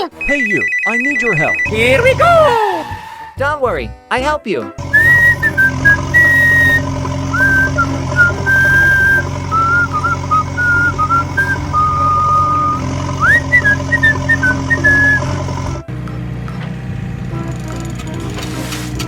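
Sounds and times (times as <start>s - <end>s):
whistled melody: 0.2s - 3.4s, 4.8s - 15.4s
low mechanical hum: 4.8s - 19.0s.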